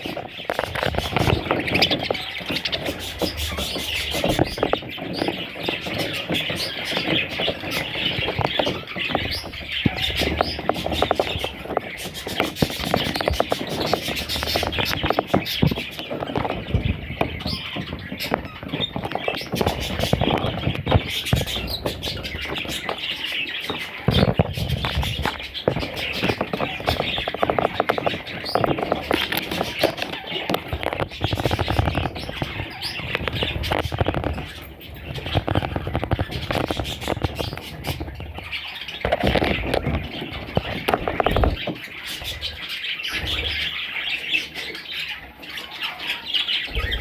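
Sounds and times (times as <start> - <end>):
budgerigars chirping: 0.0 - 47.0.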